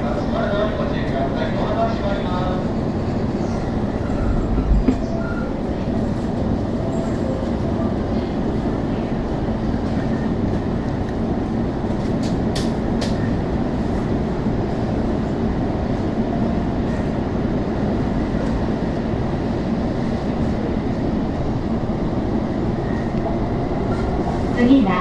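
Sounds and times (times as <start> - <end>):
train interior rumble: 0.0 - 25.0.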